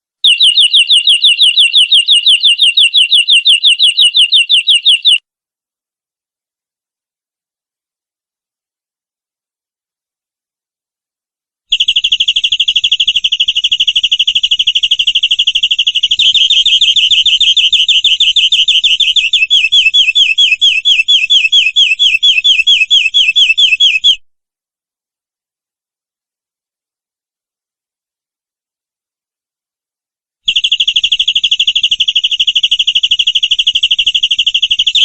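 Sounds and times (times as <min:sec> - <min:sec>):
canary singing trills: 0:00.2 - 0:05.2, 0:11.7 - 0:24.2.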